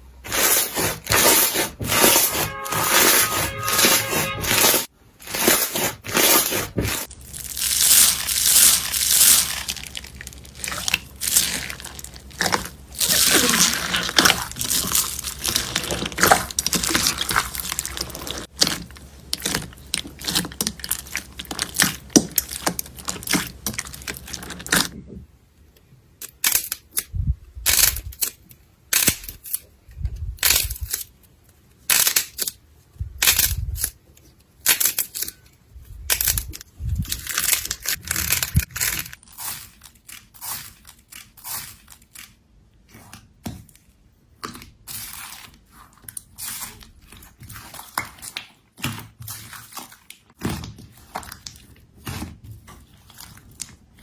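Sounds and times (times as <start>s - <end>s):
slime squeezed crinkling and popping: 7.1s - 25.0s.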